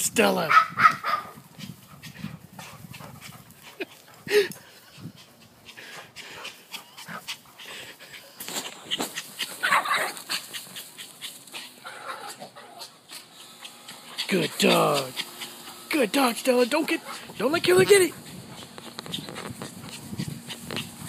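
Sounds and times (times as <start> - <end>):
dog vocal sounds: 0.7 - 15.9, 16.6 - 21.0
dogs scuffling: 13.6 - 21.0.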